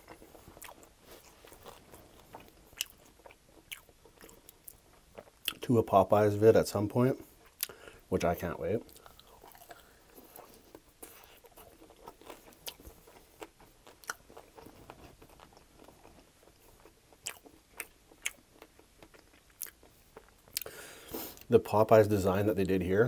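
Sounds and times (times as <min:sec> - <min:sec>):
wet chewing sounds: 0:00.0 - 0:05.6, 0:08.8 - 0:21.5.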